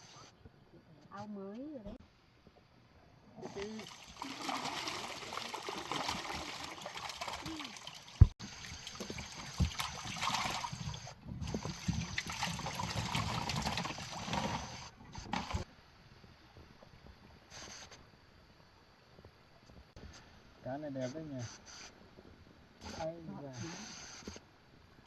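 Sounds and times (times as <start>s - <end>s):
water pouring and splashing: 3.4s - 15.7s.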